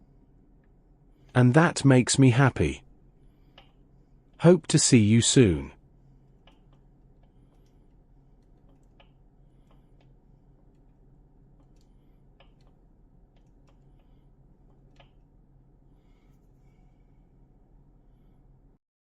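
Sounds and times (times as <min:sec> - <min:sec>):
steady low hum: 0:00.0 - 0:18.8.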